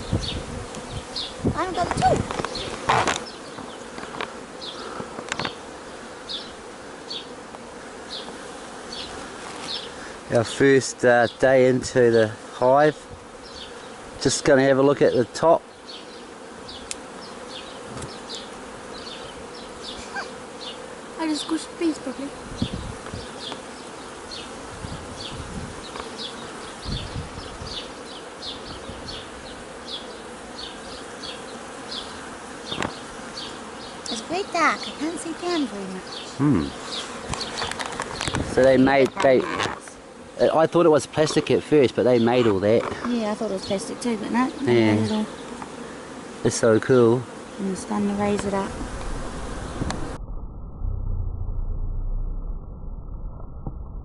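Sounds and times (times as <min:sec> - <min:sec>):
honeybees buzzing: 0:00.0 - 0:50.2.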